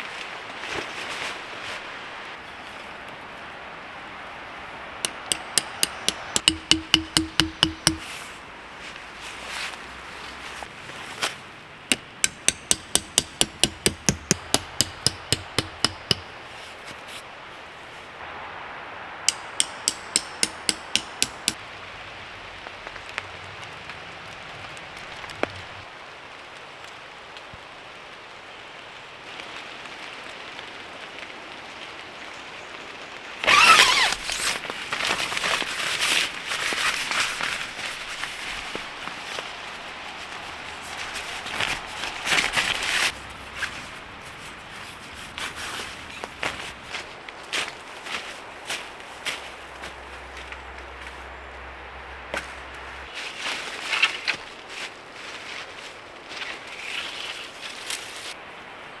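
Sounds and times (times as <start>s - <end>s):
hammer striking metal stake: 5.1s - 8.2s, 11.9s - 17.0s, 19.3s - 21.6s
twigs crackling underfoot: 33.5s - 58.4s.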